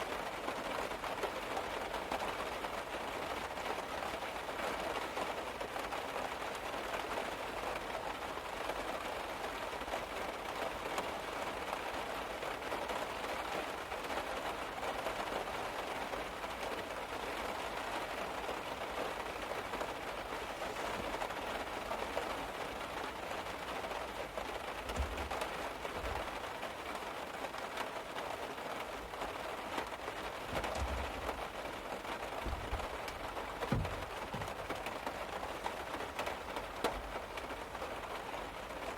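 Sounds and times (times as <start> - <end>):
rain on a car roof: 0.0 - 38.9
soft low thuds: 24.9 - 25.4, 30.4 - 31.6, 32.4 - 34.9.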